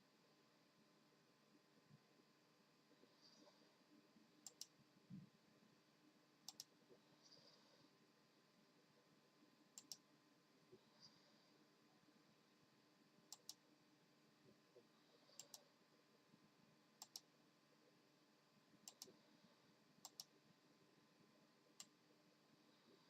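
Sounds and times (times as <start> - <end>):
faint sharp clicks: 4.4 - 4.8, 6.4 - 6.8, 9.8 - 10.1, 13.3 - 13.6, 15.3 - 15.7, 17.0 - 17.3, 18.8 - 19.2, 20.0 - 20.4, 21.8 - 22.0.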